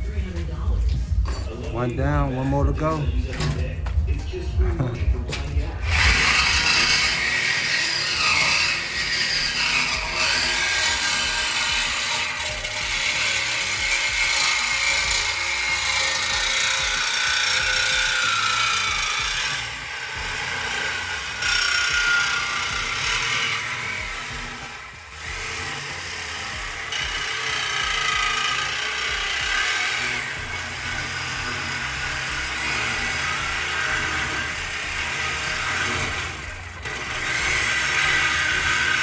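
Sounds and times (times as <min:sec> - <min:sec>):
power tool cutting metal pipe: 0:04.9 - 0:39.0.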